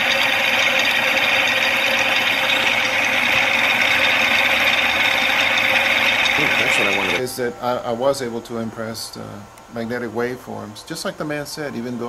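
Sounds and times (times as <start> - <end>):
small motor rattling buzz: 0.0 - 7.2.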